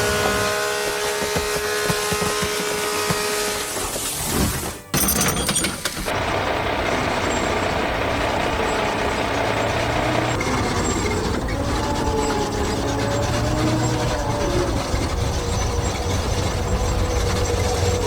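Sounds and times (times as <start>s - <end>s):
clattering: 4.4s - 6.2s
heavy vehicle engine running: 6.1s - 18.0s.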